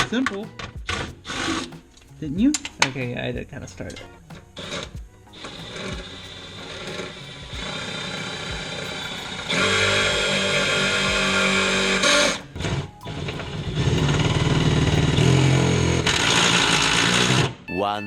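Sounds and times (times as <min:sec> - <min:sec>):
upbeat music with plucked strings: 0:00.0 - 0:17.0.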